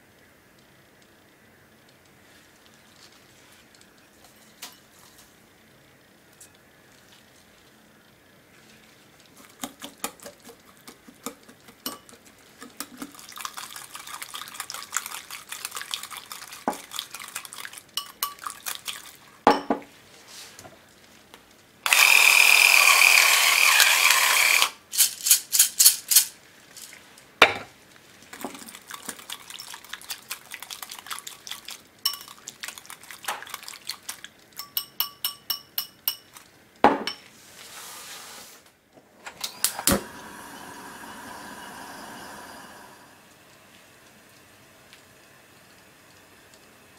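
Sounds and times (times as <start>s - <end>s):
whisk clinking in glass bowl: 11.2s - 19.8s, 28.8s - 36.4s
electric pepper mill grinding: 21.9s - 25.4s.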